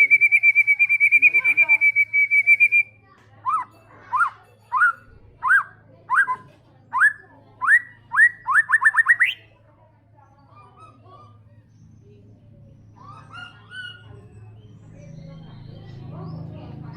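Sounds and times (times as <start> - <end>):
bird singing whistled notes: 0.0 - 2.9, 7.0 - 9.5.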